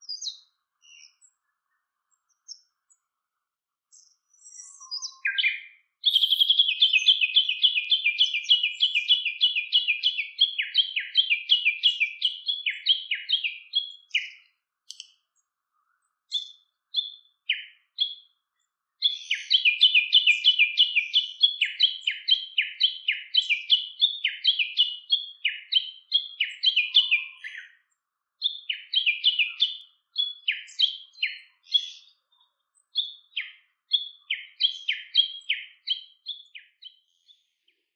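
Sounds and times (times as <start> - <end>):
bird chirping rapidly: 4.8 - 15.0.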